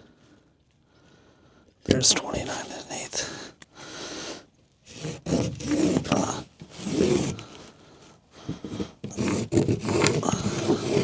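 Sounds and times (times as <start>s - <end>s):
felt-tip marker squeaking: 4.9s - 7.6s, 8.6s - 11.0s.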